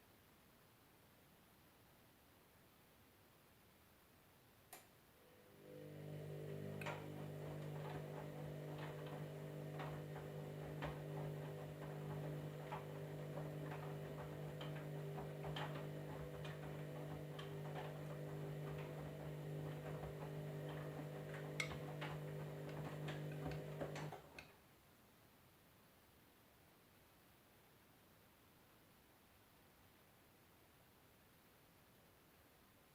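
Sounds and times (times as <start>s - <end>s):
washing machine humming: 5.2s - 24.4s.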